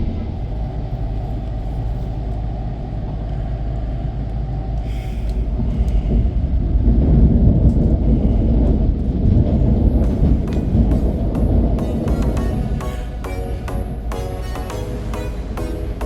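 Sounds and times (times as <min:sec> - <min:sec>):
train interior low rumble: 0:00.0 - 0:16.0.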